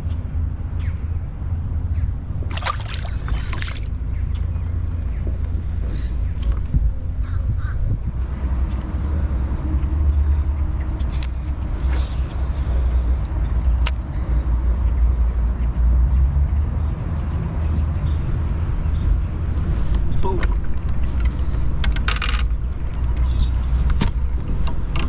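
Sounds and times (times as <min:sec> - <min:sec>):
wind buffeting microphone: 0:02.4 - 0:08.4.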